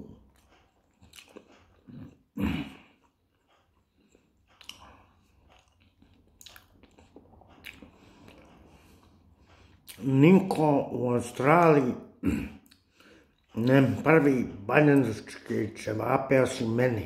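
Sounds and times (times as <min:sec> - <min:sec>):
man chewing food: 0:00.0 - 0:10.1, 0:12.5 - 0:13.8
wet mouth clicks: 0:04.6 - 0:05.0.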